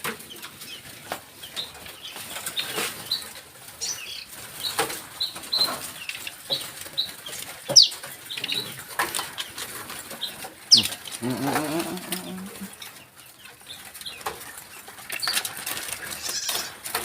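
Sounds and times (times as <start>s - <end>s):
low clucking call: 10.7s - 12.8s.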